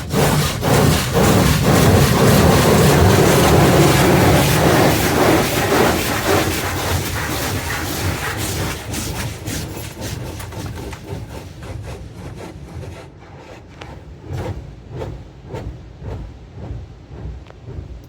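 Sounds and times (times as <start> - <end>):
water jets drumming on car body: 0.0 - 11.6.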